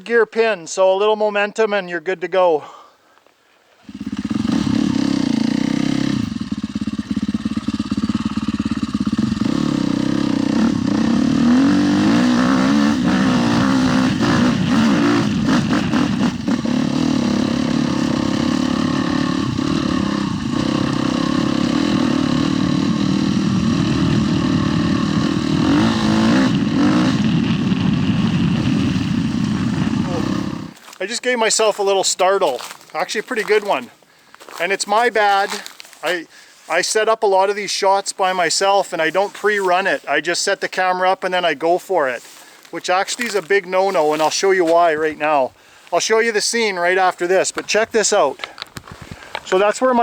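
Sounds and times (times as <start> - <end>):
motorcycle engine droning: 3.8 - 30.9, 42.2 - 50.0.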